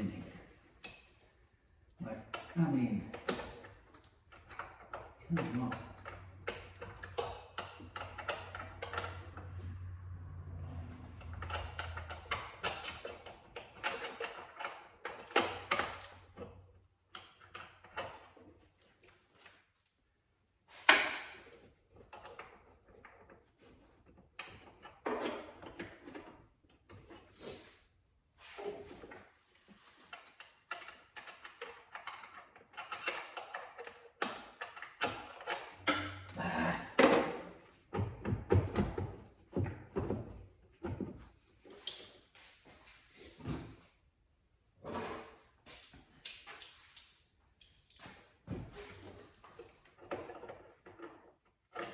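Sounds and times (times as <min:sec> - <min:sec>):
hand tools clicking and rattling: 0:02.2 - 0:09.6, 0:11.1 - 0:18.6, 0:28.9 - 0:40.1.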